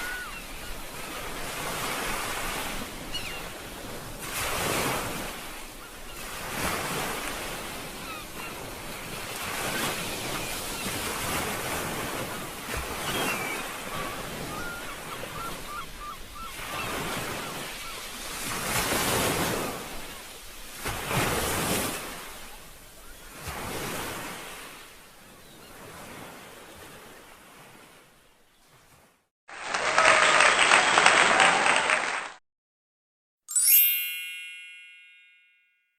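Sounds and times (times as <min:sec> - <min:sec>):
sea waves washing ashore: 0:00.0 - 0:29.2
bright ringing ding: 0:33.5 - 0:35.9.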